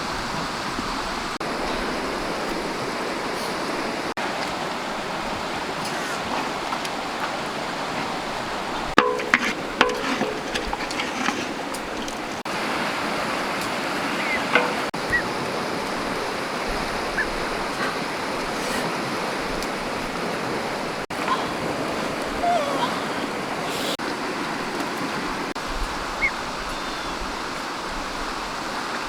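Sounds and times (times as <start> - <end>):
scattered clicks and knocks: 9.0 - 12.2.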